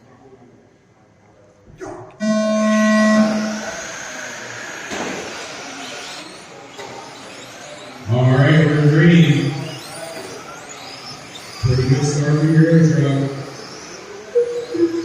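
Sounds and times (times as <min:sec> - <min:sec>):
electronic buzzer tone: 0:02.2 - 0:03.9, 0:11.6 - 0:15.0.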